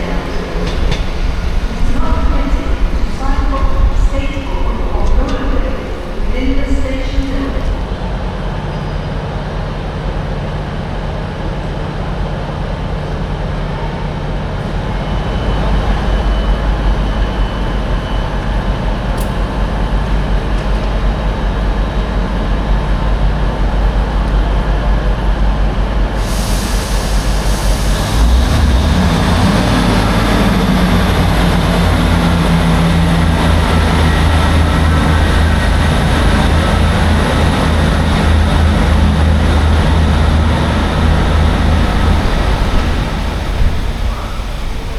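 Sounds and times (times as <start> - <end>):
train engine humming: 0.0 - 44.9
rising hiss: 26.1 - 30.8.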